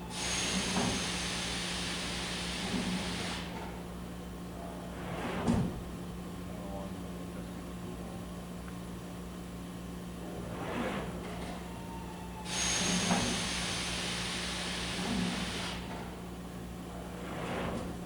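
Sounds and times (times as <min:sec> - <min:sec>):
brief swish: 0:10.4 - 0:11.3.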